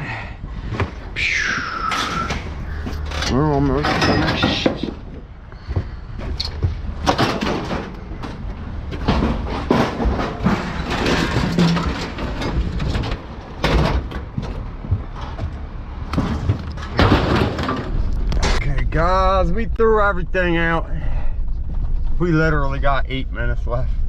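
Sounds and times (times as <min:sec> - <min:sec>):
scrap metal clanking onto a pile: 0:03.0 - 0:05.0, 0:07.0 - 0:08.0, 0:09.0 - 0:14.2, 0:16.2 - 0:18.6.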